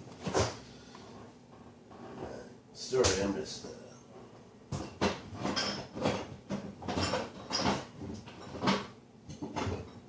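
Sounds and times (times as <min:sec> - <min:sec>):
utensils knocking and scraping cookware: 0:04.1 - 0:10.0.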